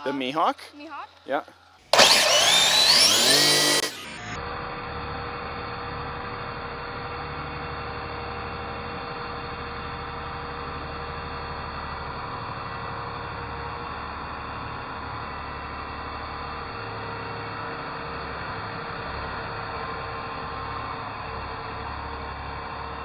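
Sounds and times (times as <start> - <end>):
electric motor whining: 2.0 - 4.4.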